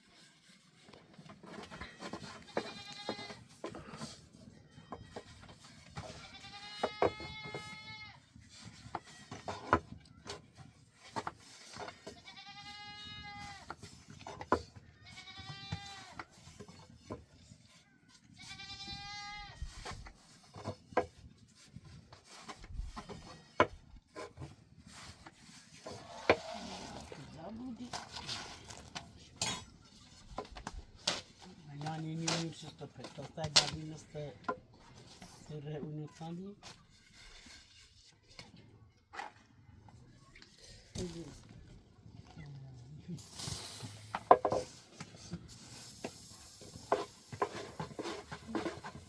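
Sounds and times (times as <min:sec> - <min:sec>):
goat bleating: 0:02.4 - 0:03.4, 0:06.1 - 0:08.2, 0:12.2 - 0:13.6, 0:15.0 - 0:16.2, 0:18.4 - 0:19.6.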